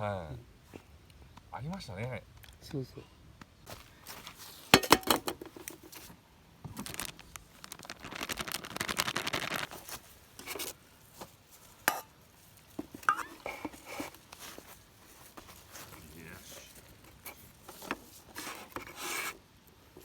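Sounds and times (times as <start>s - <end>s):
rustling: 3.7s - 20.0s
cookware clinking and knocking: 4.8s - 5.4s, 13.0s - 13.6s.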